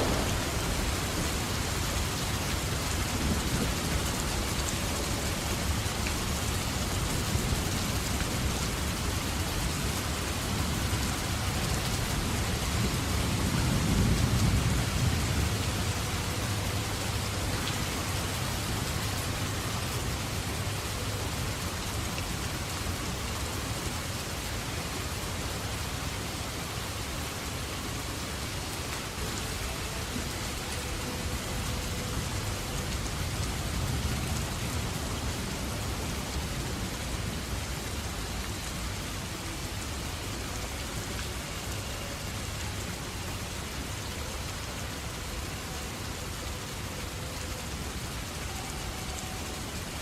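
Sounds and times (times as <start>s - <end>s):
low rumble of thunder: 0.0s - 17.4s
heavy rain falling: 0.0s - 50.0s.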